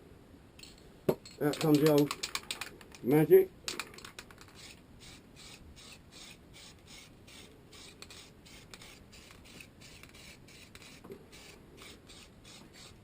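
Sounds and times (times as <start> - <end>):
rhythmic rasping shaking: 1.2 - 3.1.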